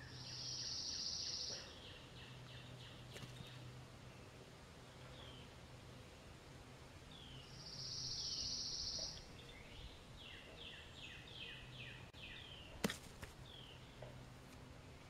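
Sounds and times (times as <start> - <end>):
faint birdsong trill and chirps: 0.0 - 15.0.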